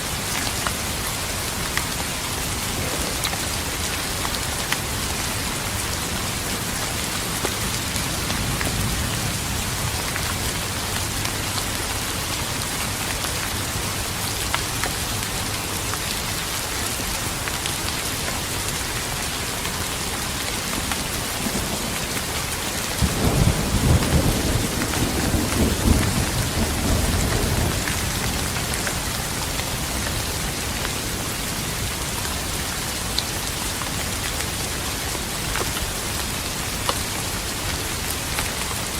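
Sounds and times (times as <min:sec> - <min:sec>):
steady rain: 0:00.0 - 0:38.9
thunder rumbling: 0:02.3 - 0:04.6, 0:23.0 - 0:30.5.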